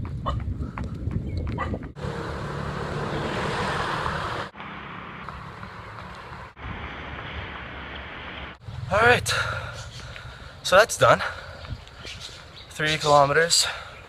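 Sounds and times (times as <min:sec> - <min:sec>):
wind on microphone: 0:00.0 - 0:02.0, 0:11.4 - 0:12.5.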